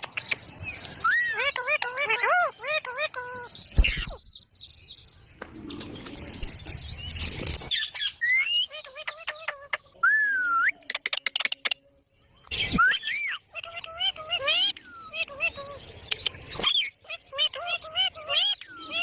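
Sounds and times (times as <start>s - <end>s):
parrot chirping and whistling: 7.7s - 8.8s.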